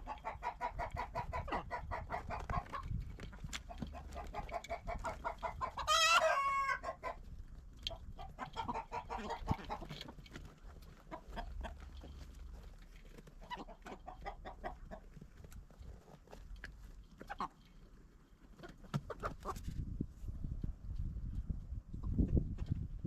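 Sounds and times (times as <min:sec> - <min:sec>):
chickens clucking: 0:00.0 - 0:19.9
chicken drawn-out call: 0:03.9 - 0:07.3.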